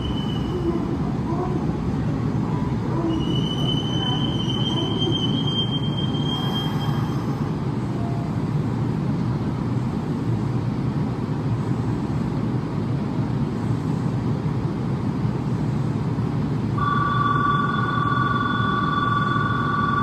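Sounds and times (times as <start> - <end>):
electric train rumbling: 0.0 - 20.0
electronic departure bell ringing: 16.8 - 20.0.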